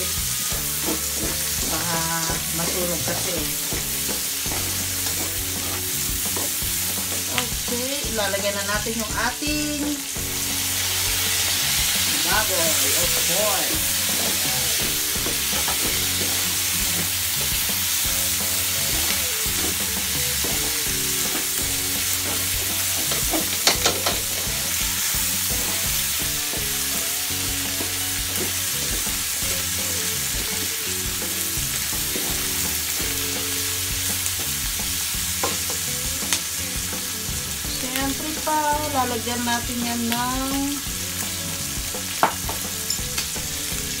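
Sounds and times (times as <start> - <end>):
food sizzling in hot oil: 0.0 - 44.0
spatula clacking against wok: 18.9 - 24.5.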